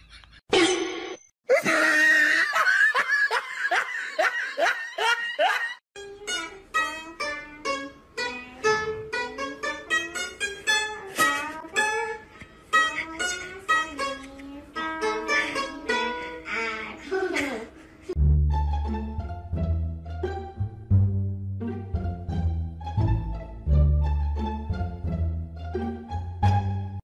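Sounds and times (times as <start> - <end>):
plucked lute notes: 6.0 - 16.8.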